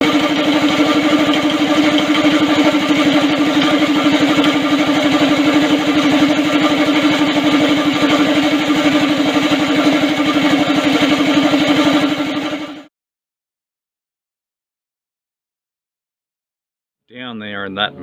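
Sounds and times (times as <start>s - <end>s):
go-kart engine idling: 0.0s - 12.0s.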